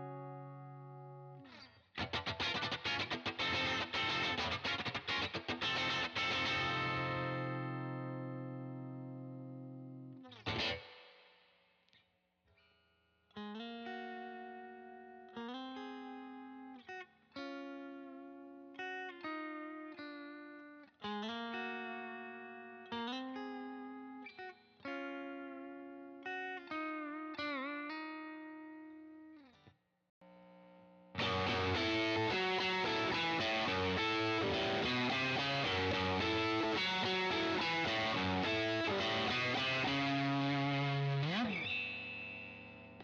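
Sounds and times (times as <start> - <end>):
overdriven electric guitar chords: 0.0 - 11.2, 30.2 - 43.0.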